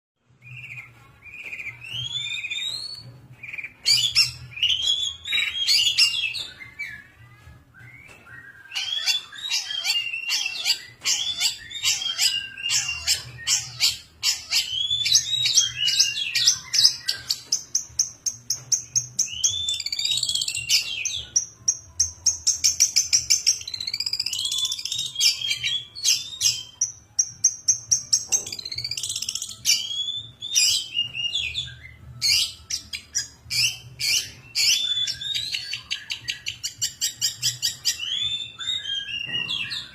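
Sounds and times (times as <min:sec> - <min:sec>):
shrike singing chirps and trills: 0:08.7 - 0:17.8.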